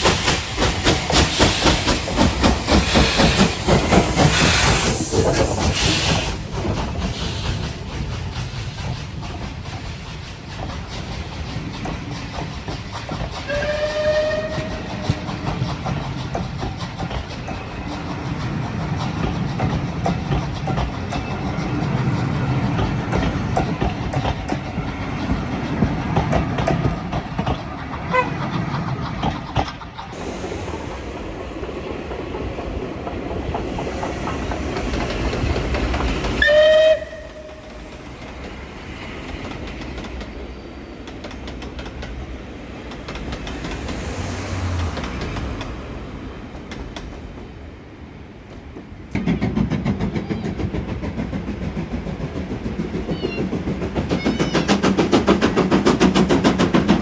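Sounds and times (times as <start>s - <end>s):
steam train chuffing and rumbling: 0.0s - 57.0s
train whistle blast: 13.5s - 15.2s, 36.4s - 37.8s.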